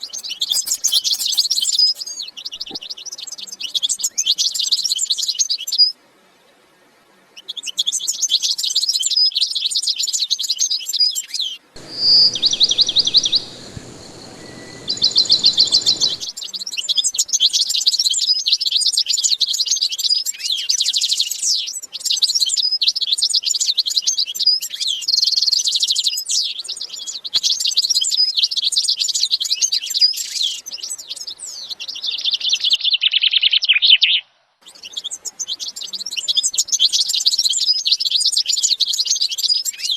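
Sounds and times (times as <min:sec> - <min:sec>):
cage birds chirping and trilling: 0:00.0 - 0:02.8, 0:11.8 - 0:17.4
steady hiss: 0:00.0 - 0:02.8, 0:11.8 - 0:16.4.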